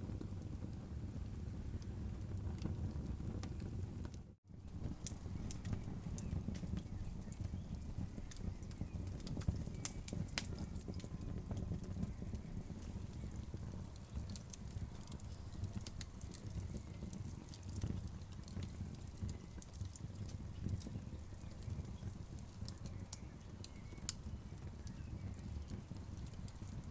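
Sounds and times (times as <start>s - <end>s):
low fire rumble: 0.0s - 26.9s
wood fire crackling and popping: 0.0s - 26.9s.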